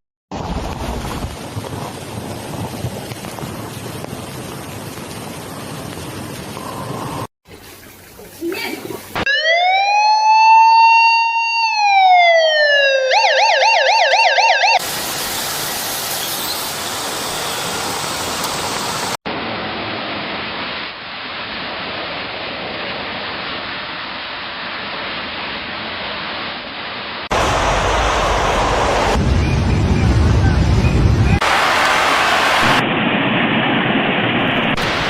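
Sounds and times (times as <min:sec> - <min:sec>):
emergency vehicle siren: 0:09.2 - 0:14.8
steady rushing noise: 0:16.7 - 0:35.0.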